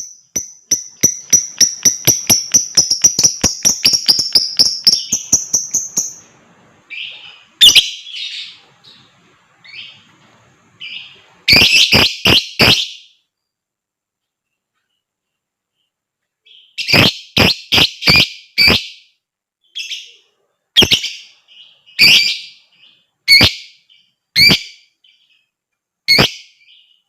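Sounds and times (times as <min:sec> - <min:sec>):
lovebird trilling chirps: 0:00.0 - 0:06.3, 0:06.9 - 0:09.0, 0:10.8 - 0:13.1, 0:20.8 - 0:25.3
harsh loud bird calls: 0:06.9 - 0:10.1, 0:10.8 - 0:13.2, 0:15.8 - 0:27.0.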